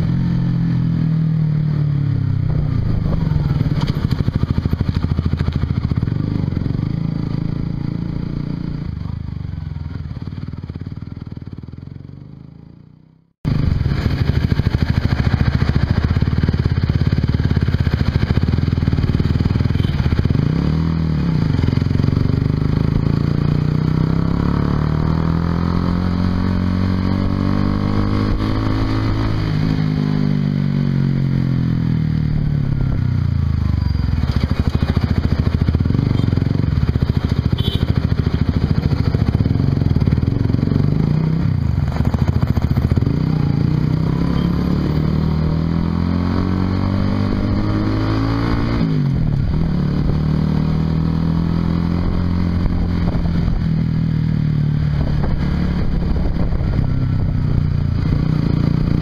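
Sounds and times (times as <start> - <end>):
motorcycle engine while riding: 0.0 - 59.0
wind noise on microphone: 51.8 - 54.0, 54.7 - 59.0.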